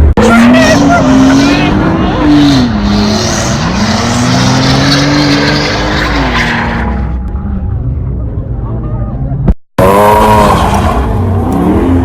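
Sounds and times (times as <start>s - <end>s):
car engine revving: 0.0s - 7.3s, 9.8s - 12.0s.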